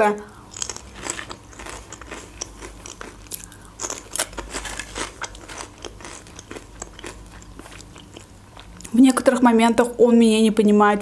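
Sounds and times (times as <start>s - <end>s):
potato chips crunching: 0.3s - 9.0s.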